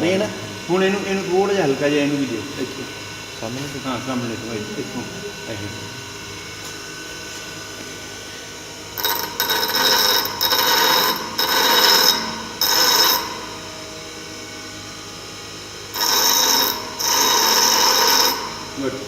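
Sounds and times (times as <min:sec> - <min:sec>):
bench grinder running: 0:00.0 - 0:19.0
high ringing grind of steel: 0:08.6 - 0:15.0, 0:15.6 - 0:19.0.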